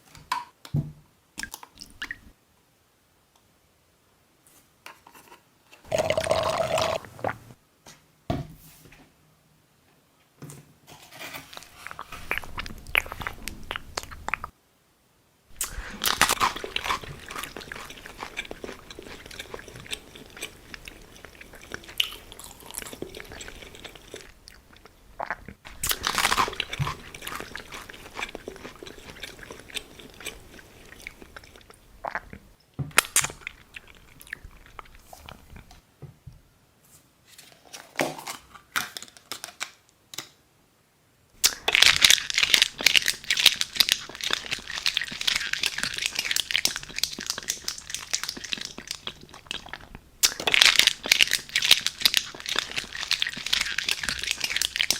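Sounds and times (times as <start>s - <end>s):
crinkling and crumpling: 10.9s - 14.5s, 15.5s - 31.8s, 41.5s - 54.9s
crunchy bites and chewing: 11.8s - 14.5s, 15.5s - 35.8s, 41.4s - 54.9s.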